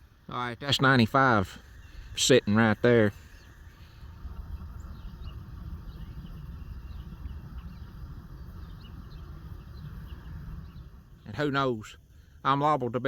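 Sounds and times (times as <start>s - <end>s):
faint bird chirps: 1.4s - 11.6s.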